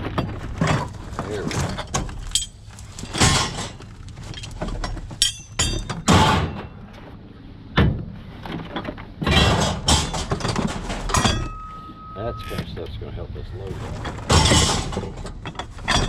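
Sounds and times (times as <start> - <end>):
objects being rummaged through: 0.0 - 6.5, 8.5 - 11.7, 13.6 - 16.0
short high metallic ring: 11.3 - 12.6.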